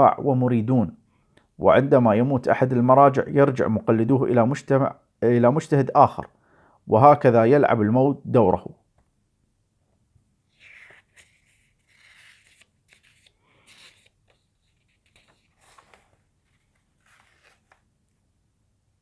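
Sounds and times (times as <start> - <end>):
paper rustling and crinkling: 10.5 - 18.2.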